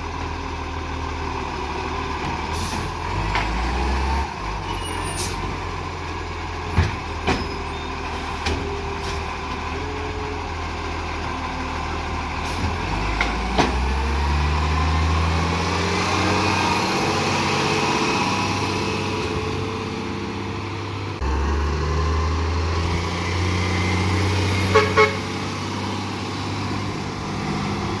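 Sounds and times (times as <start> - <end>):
garbage truck engine running: 0.0 - 28.0.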